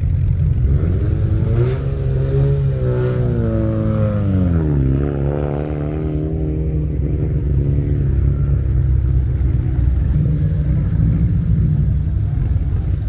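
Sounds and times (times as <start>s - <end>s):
car engine idling: 0.0s - 5.2s, 6.4s - 13.0s.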